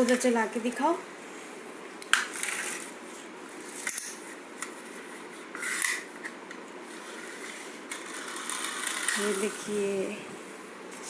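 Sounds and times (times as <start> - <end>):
toy cars scraping on surface: 6.9 - 10.0.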